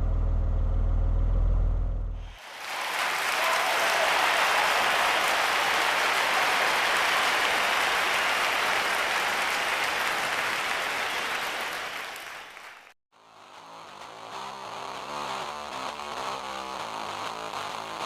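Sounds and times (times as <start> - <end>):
applause: 2.2 - 13.0.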